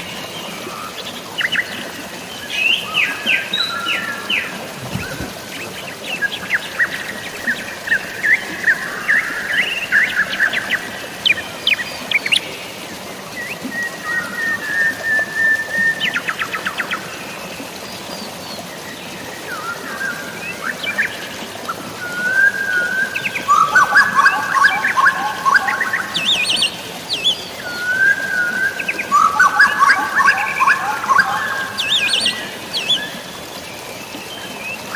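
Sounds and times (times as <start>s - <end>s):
running water: 0.0s - 34.9s
rain hissing: 4.3s - 6.4s
birds chirping and trilling: 23.2s - 33.2s.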